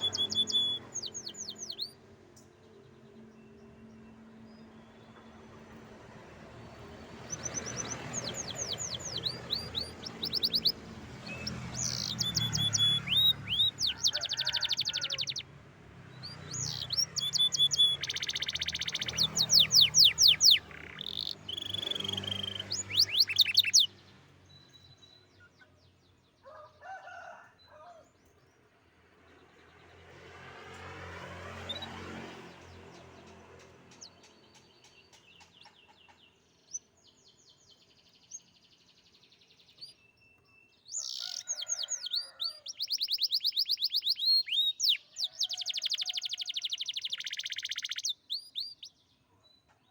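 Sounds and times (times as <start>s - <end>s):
canary singing trills: 0.0s - 2.1s, 7.2s - 15.6s, 16.2s - 25.9s, 32.6s - 49.6s.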